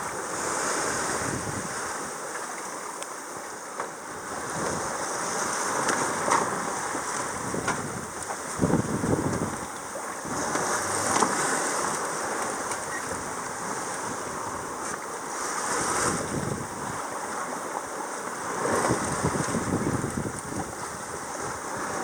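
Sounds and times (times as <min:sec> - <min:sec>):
wind buffeting microphone: 0:00.0 - 0:02.0, 0:05.7 - 0:12.0, 0:15.7 - 0:17.2, 0:18.4 - 0:22.0
water rushing along boat hull: 0:00.0 - 0:22.0.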